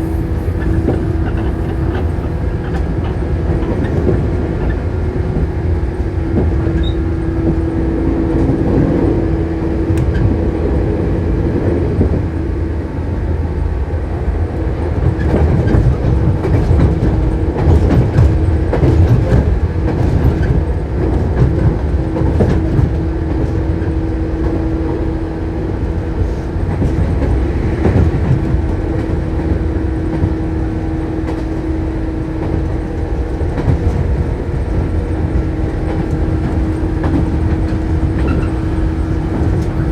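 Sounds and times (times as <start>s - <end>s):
electric train rumbling: 0.0s - 39.9s
steady train hum: 0.0s - 39.9s
wheels clicking over rail joints: 15.0s - 24.6s, 32.3s - 39.9s.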